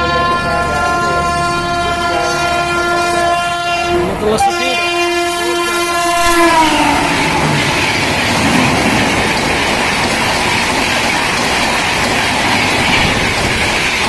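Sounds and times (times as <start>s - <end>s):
train horn: 0.0s - 14.0s
rush of wind and wheel noise: 6.2s - 14.0s.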